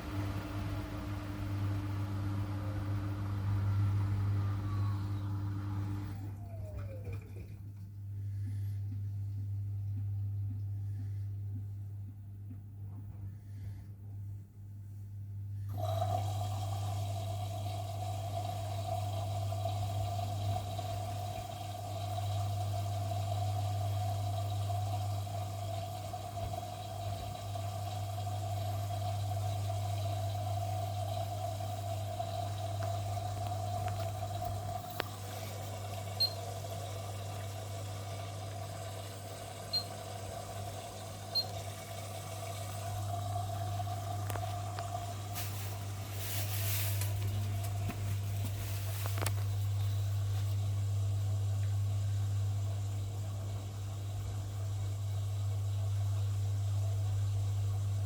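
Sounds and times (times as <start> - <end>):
washing machine running: 0.0 - 13.7, 15.2 - 58.0
water flowing in: 15.8 - 50.9.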